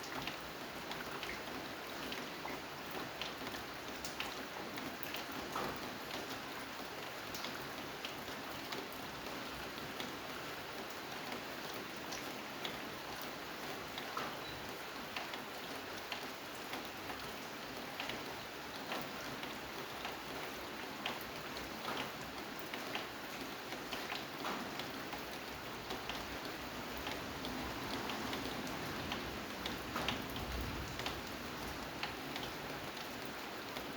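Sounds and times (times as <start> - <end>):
rain falling: 0.0 - 33.9.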